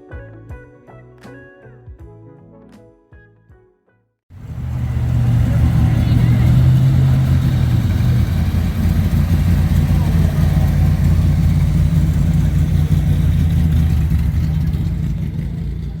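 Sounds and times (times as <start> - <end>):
car engine idling: 4.3 - 16.0.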